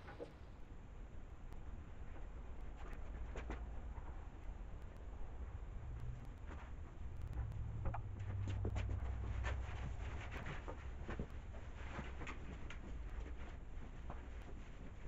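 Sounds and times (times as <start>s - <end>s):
low hum: 3.6s - 12.0s.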